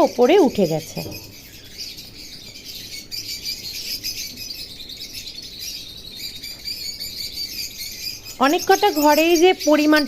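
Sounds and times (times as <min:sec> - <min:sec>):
caged birds chirping: 0:00.0 - 0:10.0.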